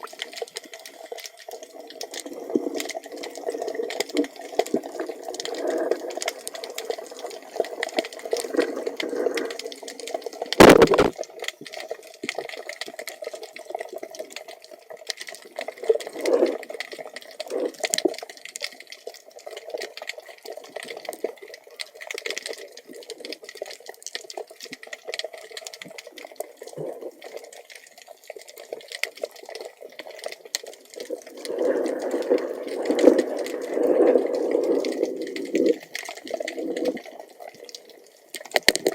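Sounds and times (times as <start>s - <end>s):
muffled water sloshing underwater: 0.0s - 38.9s
sharp knock: 10.6s - 11.1s
small clicks: 37.7s - 38.9s.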